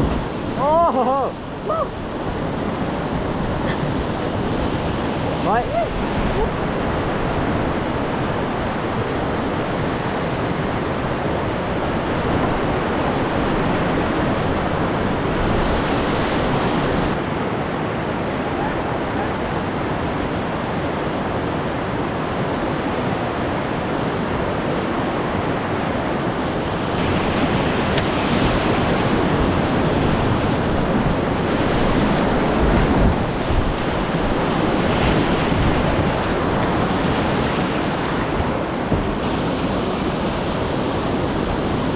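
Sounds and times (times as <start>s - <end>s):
whitewater river rushing: 0.0s - 41.9s.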